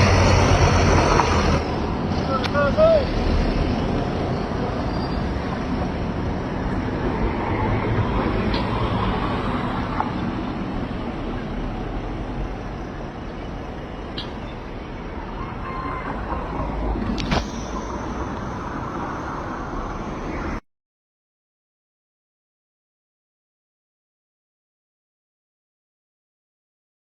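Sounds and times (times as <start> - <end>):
road traffic passing: 0.0 - 20.6.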